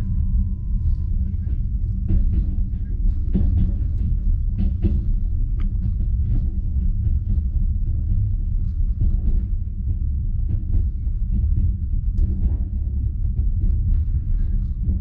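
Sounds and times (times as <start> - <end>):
wheels rumbling on rails: 0.0 - 15.0.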